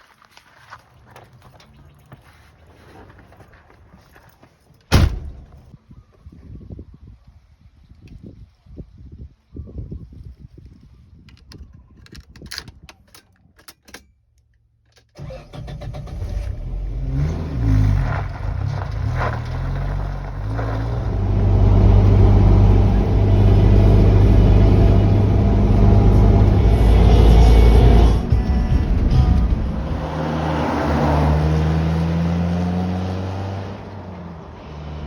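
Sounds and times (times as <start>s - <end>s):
car engine starting and revving: 15.2s - 35.0s.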